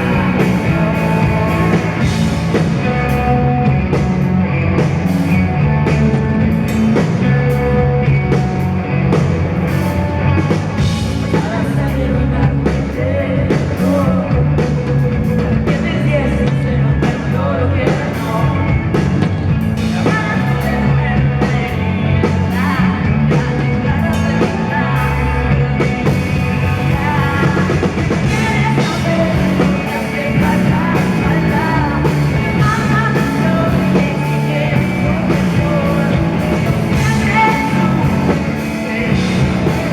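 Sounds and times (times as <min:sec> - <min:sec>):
woman singing: 0:00.0 - 0:03.5, 0:11.2 - 0:19.0, 0:19.8 - 0:39.9
drum kit: 0:00.0 - 0:39.9
rock band playing: 0:00.0 - 0:39.9.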